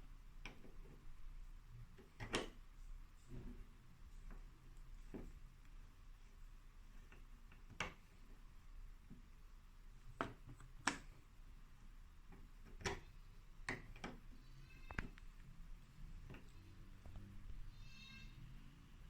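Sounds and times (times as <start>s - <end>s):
faint squeak: 14.3s - 15.6s, 16.4s - 19.0s.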